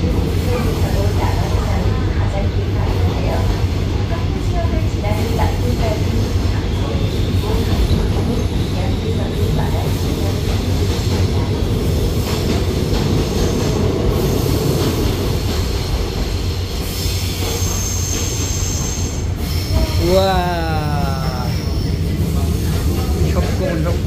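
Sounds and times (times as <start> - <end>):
train wheels rumbling on rails: 0.0 - 24.0
high wheel squeal: 17.0 - 20.1.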